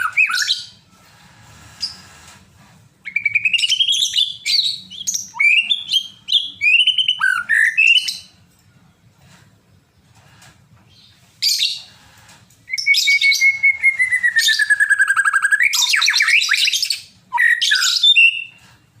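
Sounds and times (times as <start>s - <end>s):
bird singing varied song: 0.0s - 0.8s, 3.0s - 9.2s, 12.7s - 18.6s.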